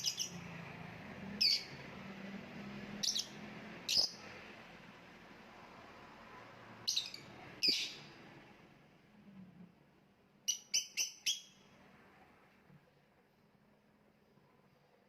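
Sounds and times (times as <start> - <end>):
lovebird chirping: 0.0 - 0.5, 1.4 - 1.8, 3.0 - 4.2, 6.9 - 8.1, 10.4 - 11.6.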